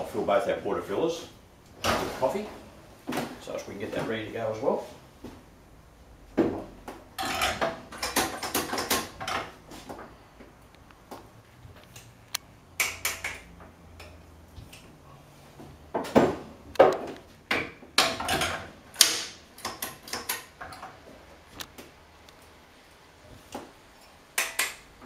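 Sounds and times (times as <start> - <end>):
metal portafilters clacking: 7.2 - 9.6, 18.0 - 21.0.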